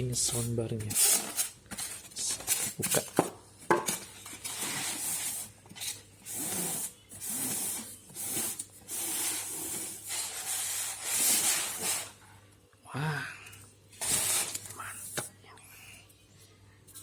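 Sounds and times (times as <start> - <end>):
packaging rubbing and rustling: 14.0 - 14.7.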